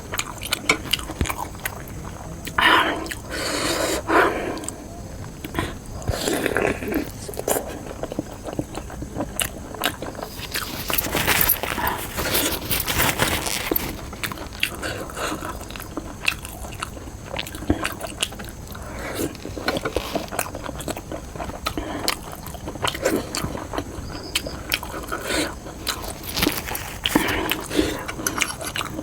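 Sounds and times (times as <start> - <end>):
crunchy bites: 0.0 - 29.0
person chewing food: 0.0 - 29.0.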